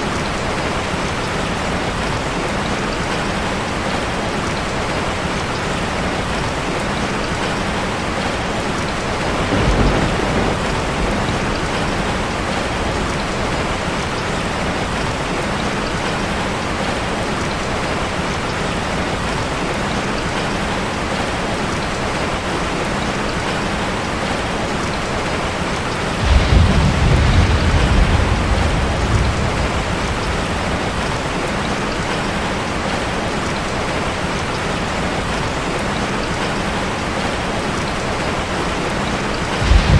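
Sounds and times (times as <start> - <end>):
rain on a metal roof: 0.0 - 39.9
thunder rumbling: 8.9 - 15.0, 26.2 - 32.5, 39.0 - 39.9.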